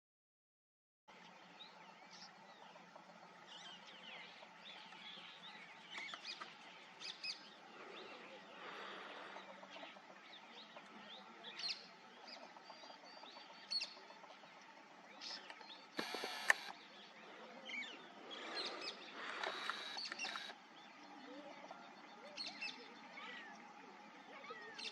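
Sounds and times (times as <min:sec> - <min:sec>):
small birds chirping: 0:01.2 - 0:24.9
background hiss: 0:14.5 - 0:21.5.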